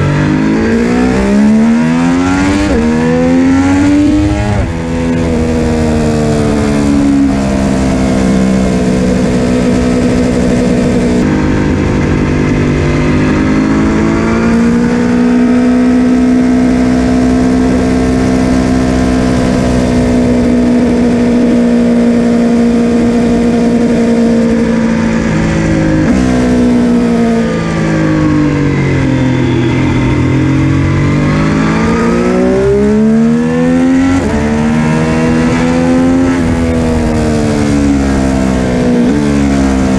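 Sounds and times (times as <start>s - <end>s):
motorcycle exhaust note: 0.0s - 39.9s.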